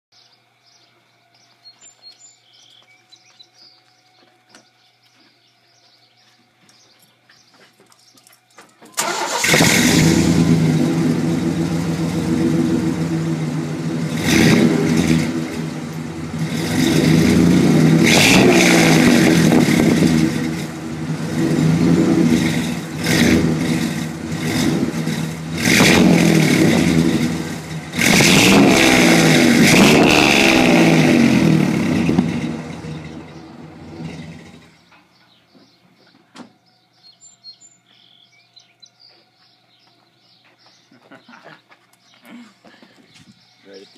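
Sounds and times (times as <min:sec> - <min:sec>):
engine revving: 0:09.0 - 0:34.8
pickup engine starting: 0:09.0 - 0:35.0.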